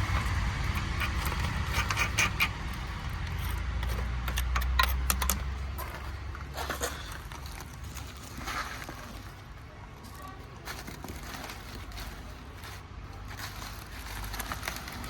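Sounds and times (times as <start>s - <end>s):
metallic clicks and clinks: 3.0s - 5.6s.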